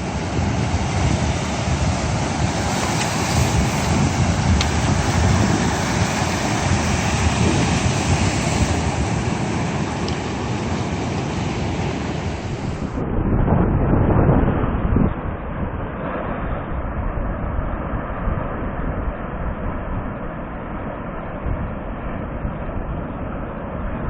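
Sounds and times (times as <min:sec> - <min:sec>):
sea waves breaking: 0:00.0 - 0:13.0
wind buffeting microphone: 0:00.0 - 0:20.6.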